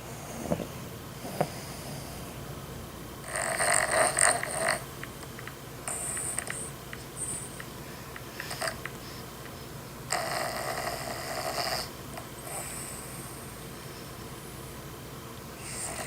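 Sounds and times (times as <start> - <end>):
dog snoring: 0.0 - 2.3, 3.2 - 4.9, 5.8 - 7.6, 8.4 - 9.2, 10.1 - 13.5, 15.5 - 16.0.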